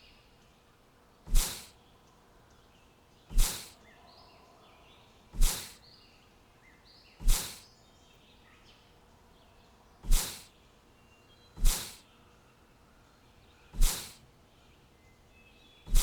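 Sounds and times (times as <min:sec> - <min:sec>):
faint bird chirps: 0:00.0 - 0:16.0
loud hissing whooshes: 0:01.3 - 0:01.7, 0:03.3 - 0:03.8, 0:05.4 - 0:05.8, 0:07.2 - 0:07.6, 0:10.0 - 0:10.5, 0:11.6 - 0:12.0, 0:13.8 - 0:14.2.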